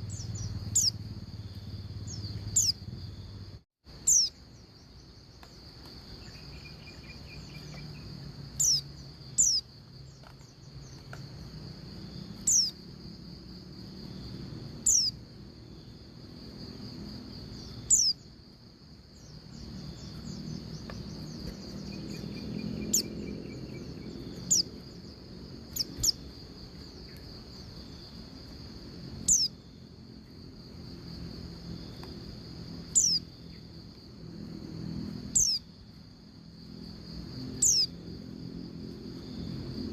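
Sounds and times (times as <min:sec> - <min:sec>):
bird chirping: 0:00.0 - 0:03.2, 0:03.9 - 0:11.4, 0:12.1 - 0:12.8, 0:14.8 - 0:15.2, 0:17.4 - 0:18.3, 0:19.1 - 0:28.2, 0:29.2 - 0:29.8, 0:32.9 - 0:33.6, 0:35.3 - 0:35.7, 0:37.5 - 0:38.0
high-pitched insect buzz: 0:00.0 - 0:39.9.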